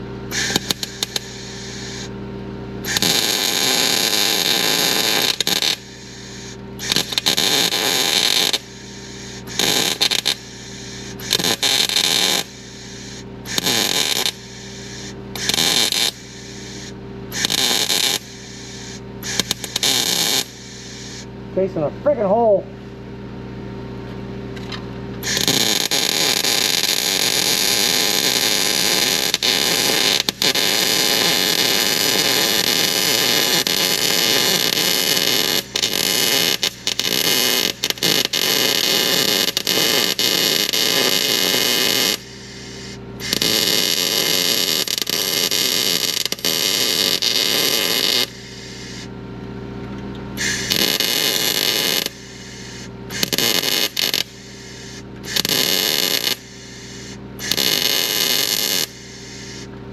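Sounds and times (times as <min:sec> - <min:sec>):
arc welding crackling hiss: 0:00.0 - 0:02.2, 0:02.8 - 0:21.3, 0:25.2 - 0:49.1, 0:50.4 - 0:59.7
low hum: 0:18.2 - 0:26.4.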